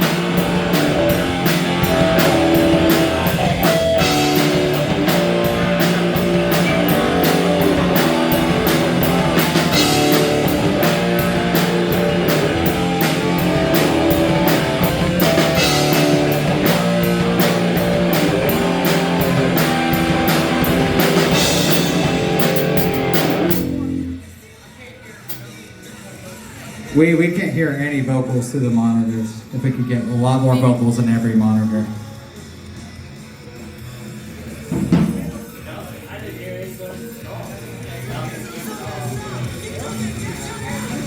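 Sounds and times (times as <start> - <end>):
drum kit: 0.0 - 24.3, 32.4 - 36.3
guitar: 0.0 - 41.0.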